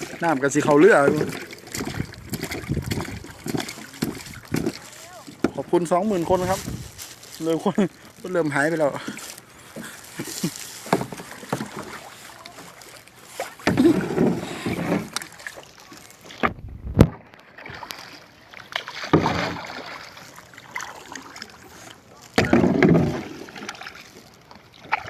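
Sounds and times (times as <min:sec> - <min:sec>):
water splashing around a boat: 0:00.0 - 0:25.0.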